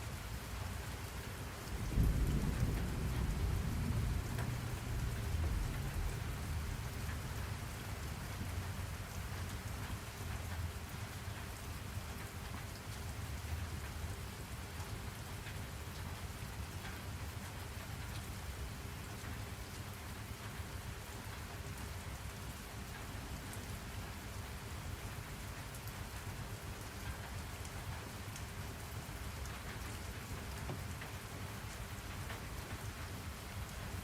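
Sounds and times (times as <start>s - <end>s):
rain falling: 0.0s - 34.0s
low rumble: 1.9s - 7.3s.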